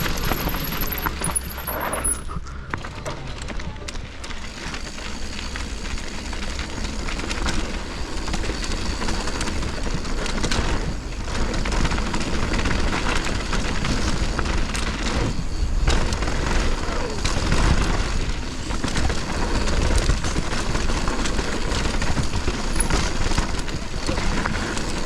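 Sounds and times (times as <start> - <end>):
bike rattling clicks: 0.0 - 2.3
tyre noise on dirt: 4.8 - 25.0.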